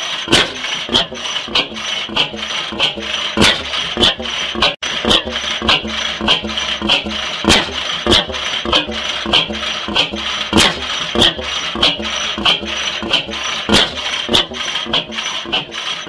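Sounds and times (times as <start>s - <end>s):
old engine knocking slowly: 0.0s - 16.0s.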